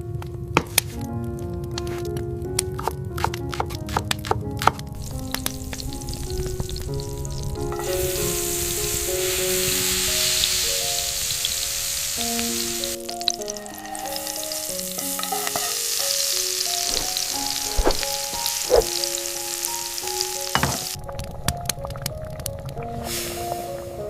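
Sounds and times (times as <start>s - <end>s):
soft melodic background music: 0.0s - 24.0s
food sizzling in a pan: 5.0s - 21.0s.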